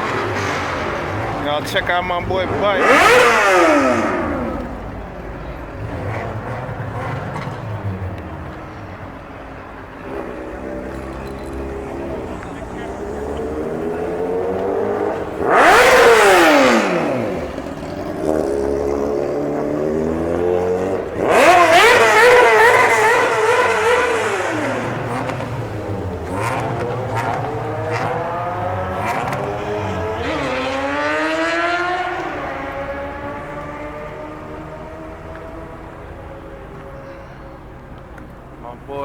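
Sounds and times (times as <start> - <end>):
engine revving hard: 0.0 - 4.8, 11.5 - 35.6.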